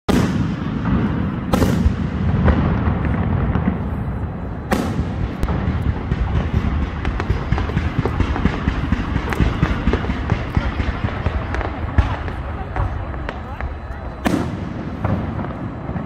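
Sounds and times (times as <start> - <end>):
fireworks bursting: 0.1 - 16.0
sharp firework bangs: 0.1 - 16.0.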